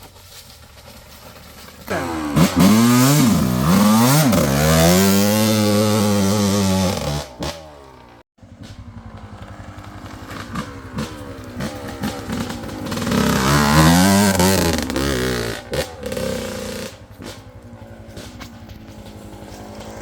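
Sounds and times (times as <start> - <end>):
two-stroke engine revving: 1.8 - 20.0.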